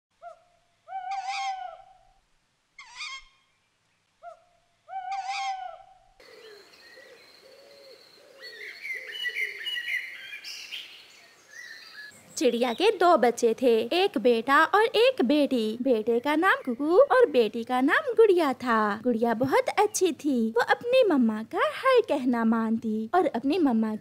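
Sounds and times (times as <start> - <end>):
small birds chirping: 2.8 - 14.7, 16.2 - 17.9
harsh bird calls: 4.2 - 12.9.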